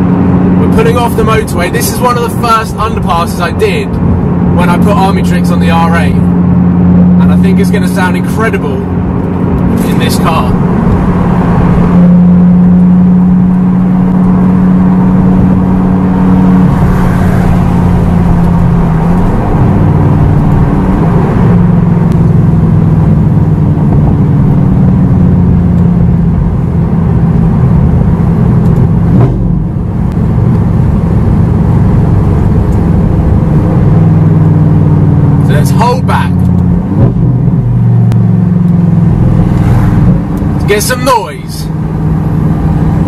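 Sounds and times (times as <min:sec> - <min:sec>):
car engine heard from cabin: 0:00.0 - 0:43.0.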